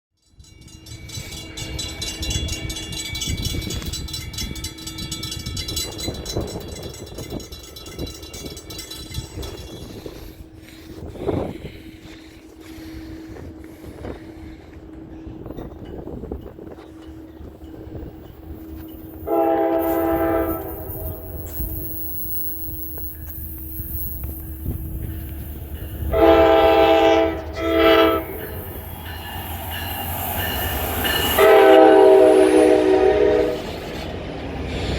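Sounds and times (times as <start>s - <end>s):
diesel train rumbling and rattling: 0.3s - 34.9s
train horn blast: 19.2s - 21.6s, 26.1s - 28.6s, 31.2s - 33.8s.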